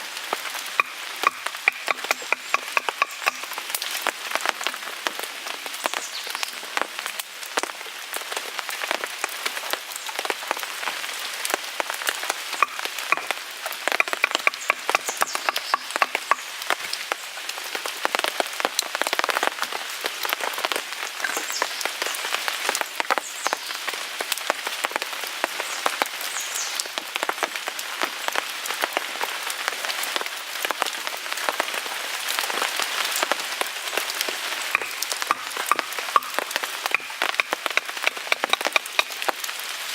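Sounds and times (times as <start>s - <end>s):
wood fire crackling: 0.0s - 5.7s, 6.8s - 18.2s, 32.6s - 39.9s
rain pattering on a tarp: 0.0s - 39.9s.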